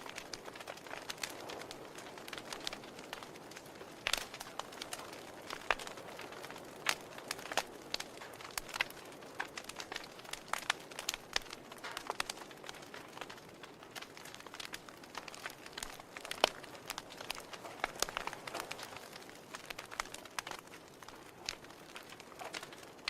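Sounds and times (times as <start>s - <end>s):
fire pops and snaps: 0.0s - 23.0s
soft hiss of flames: 0.0s - 23.0s.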